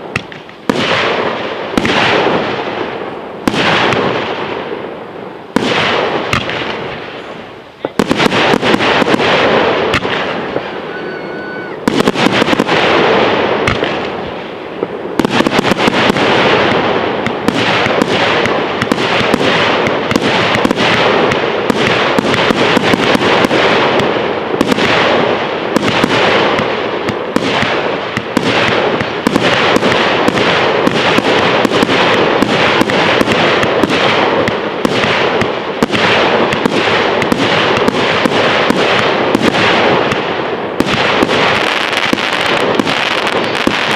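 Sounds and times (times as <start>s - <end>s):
fireworks bangs and crackling: 0.0s - 43.9s.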